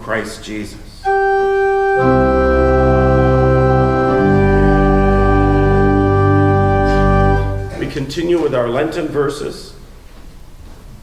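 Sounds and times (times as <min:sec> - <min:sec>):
church organ chords: 0:01.0 - 0:08.2.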